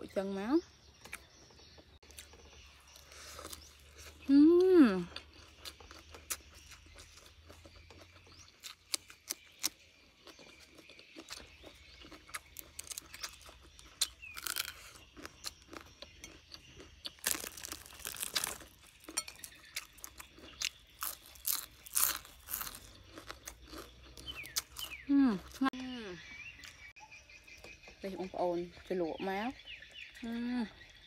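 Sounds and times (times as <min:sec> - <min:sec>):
chewing and crunching food: 0:00.2 - 0:31.0.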